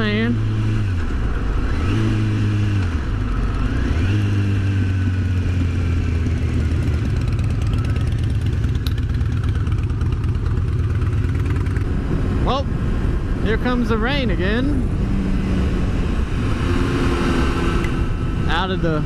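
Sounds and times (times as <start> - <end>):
motorcycle engine revving: 0.0 - 19.0
wind noise: 11.5 - 19.0.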